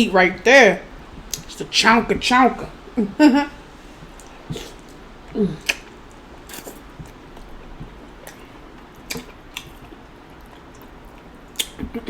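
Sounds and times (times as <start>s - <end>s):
wet chewing and lip smacks: 1.2s - 1.5s, 4.0s - 12.0s.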